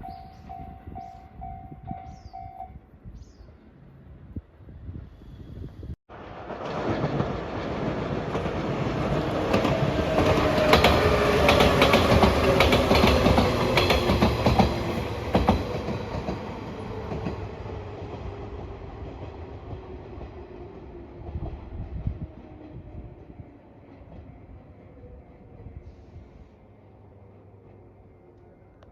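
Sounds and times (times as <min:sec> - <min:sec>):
train passing at speed: 0:00.0 - 0:28.9
wheels clicking over rail joints: 0:08.2 - 0:17.6.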